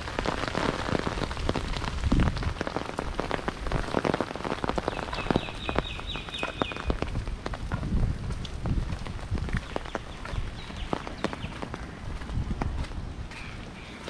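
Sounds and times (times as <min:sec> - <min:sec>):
rain pattering: 0:00.0 - 0:14.0.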